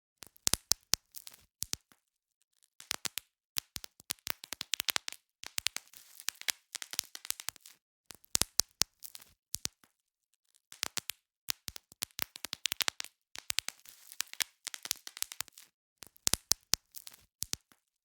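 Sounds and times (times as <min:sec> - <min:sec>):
bubble wrap popping: 0:02.8 - 0:09.8, 0:10.7 - 0:17.8.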